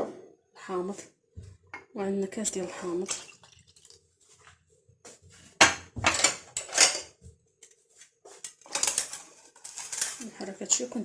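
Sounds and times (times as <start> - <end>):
utensils clattering against a pot: 5.6 - 7.3, 8.3 - 11.0.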